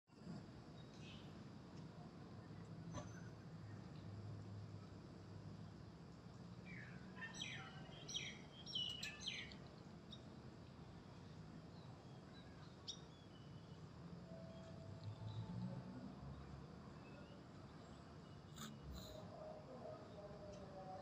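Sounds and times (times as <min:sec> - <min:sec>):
small bird chirps: 0:06.7 - 0:10.3, 0:17.0 - 0:19.2.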